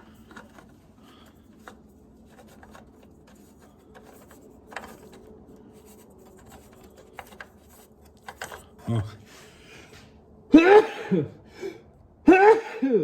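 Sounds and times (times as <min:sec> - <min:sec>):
light handling clicks and rubs: 0:00.0 - 0:10.2.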